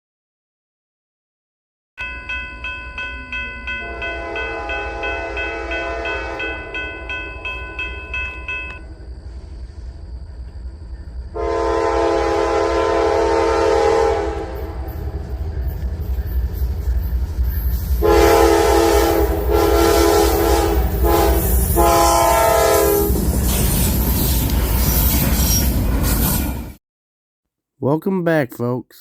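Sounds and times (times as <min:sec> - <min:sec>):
train rumbling: 0:02.1 - 0:26.8
locomotive air horn blasts: 0:03.9 - 0:06.5, 0:11.4 - 0:15.0, 0:18.0 - 0:23.2.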